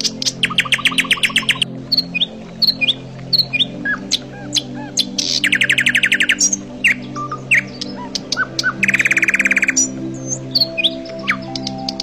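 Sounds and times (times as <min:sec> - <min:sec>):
soft background music: 0:00.0 - 0:12.0
songbirds chirping and trilling: 0:00.0 - 0:12.0.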